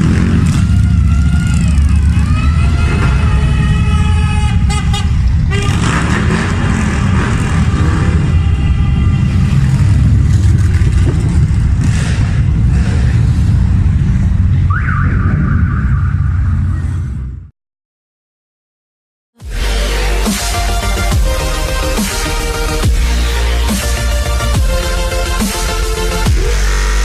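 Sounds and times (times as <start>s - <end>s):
motorcycle engines revving: 0.0s - 17.3s.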